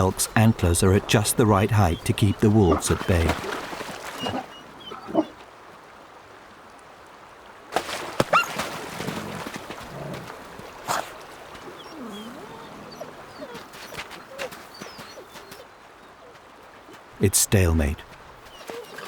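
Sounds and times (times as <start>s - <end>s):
water splashing: 0.0s - 5.4s, 7.7s - 15.6s
wolves whining and yelping: 4.1s - 5.4s, 8.3s - 8.6s, 10.9s - 16.4s, 18.4s - 19.0s.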